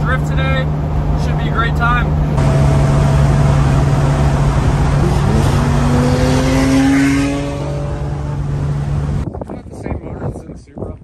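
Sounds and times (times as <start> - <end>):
car engine drone: 0.0 - 9.2
road noise: 0.0 - 10.8
second car engine note: 2.4 - 8.9.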